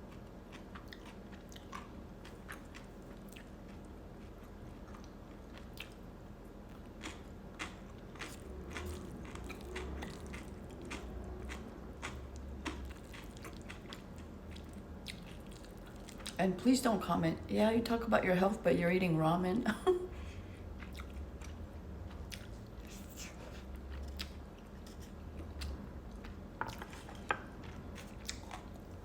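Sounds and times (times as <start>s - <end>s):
close chewing of noodles: 0.0s - 16.4s, 20.7s - 29.0s.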